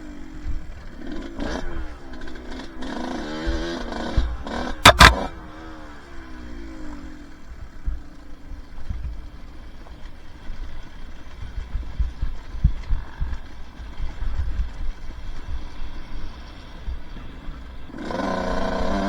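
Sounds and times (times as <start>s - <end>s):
dirt bike engine at low throttle: 0.0s - 19.0s
knocks on the microphone: 4.8s - 5.3s
wind rumble on microphone: 10.5s - 17.9s.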